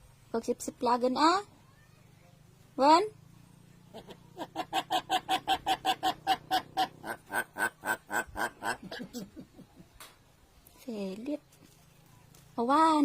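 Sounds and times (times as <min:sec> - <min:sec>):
bird clucking calls: 0:03.8 - 0:10.2.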